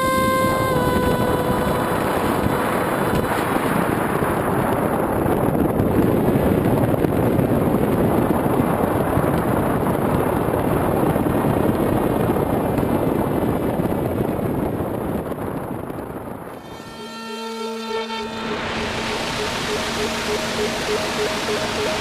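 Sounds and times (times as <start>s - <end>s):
wind rushing on microphone: 0.0s - 16.9s.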